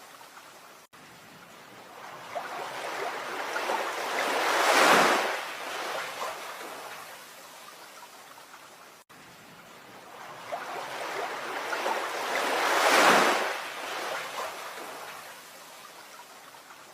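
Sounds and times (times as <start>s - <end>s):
water rushing: 0.0s - 16.9s.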